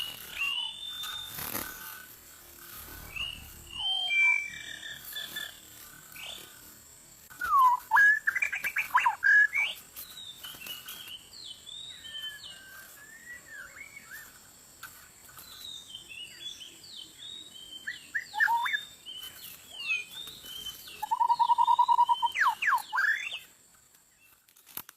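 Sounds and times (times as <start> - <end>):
bird whistled song: 0.0 - 1.6, 2.8 - 6.5, 7.3 - 14.4, 15.4 - 23.5
buzzy bird rattle: 0.0 - 3.8.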